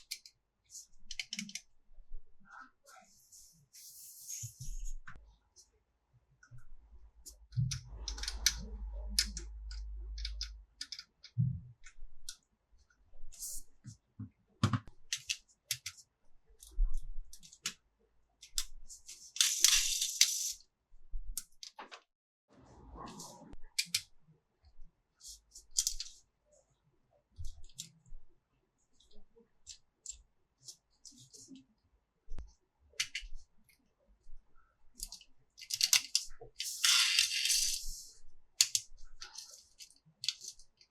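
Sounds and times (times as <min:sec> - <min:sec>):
plastic toy pieces clicking: 0:35.6 - 0:37.8, 0:38.6 - 0:38.8.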